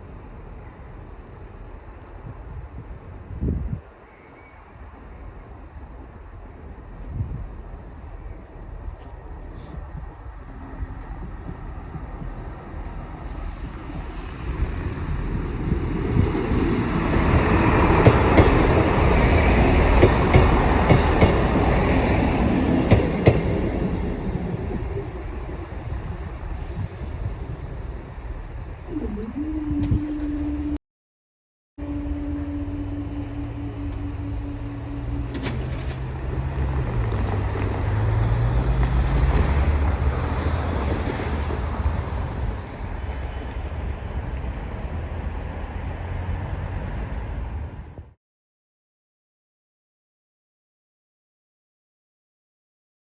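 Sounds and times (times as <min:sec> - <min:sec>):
train running rumble: 0:05.4 - 0:30.8, 0:31.8 - 0:48.0
train wheels clicking over rail joints: 0:16.6 - 0:23.8, 0:35.0 - 0:40.1
steady tone: 0:31.8 - 0:36.4.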